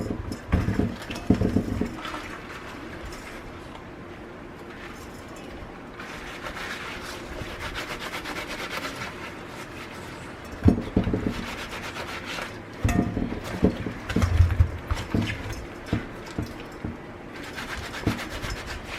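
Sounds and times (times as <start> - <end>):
irregular knocks and thuds: 10.6 - 11.4, 12.8 - 17.0.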